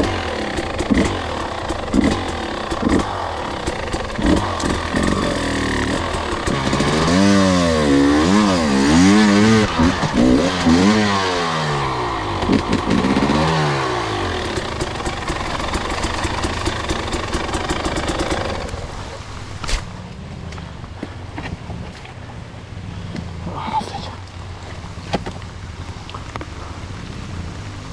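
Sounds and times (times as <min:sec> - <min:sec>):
dirt bike engine revving: 0:00.0 - 0:20.8.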